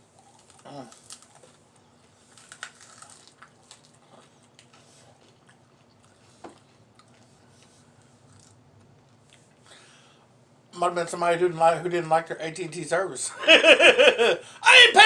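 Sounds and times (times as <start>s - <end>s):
person chewing food: 0.0s - 9.7s.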